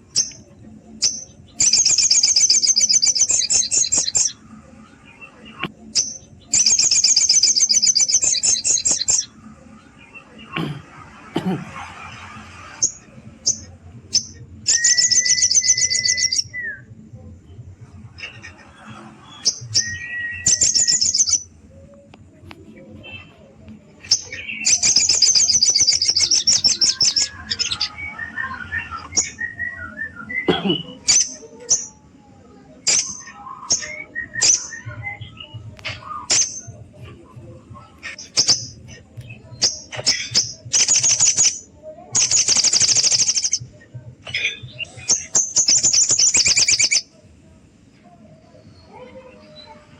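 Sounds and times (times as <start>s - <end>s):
bird chirping and trilling: 0.1s - 4.4s, 5.9s - 9.3s, 12.8s - 16.7s, 19.3s - 21.5s, 24.0s - 29.8s, 38.0s - 43.6s, 44.3s - 47.0s
bird sharp piercing chirps: 1.0s - 4.3s, 24.1s - 27.9s, 42.2s - 43.6s, 45.2s - 47.0s.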